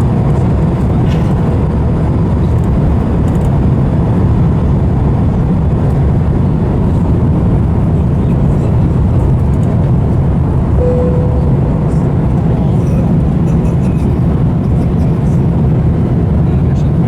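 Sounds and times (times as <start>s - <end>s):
airliner cabin rumble: 0.0s - 17.0s
single tone: 10.8s - 12.5s.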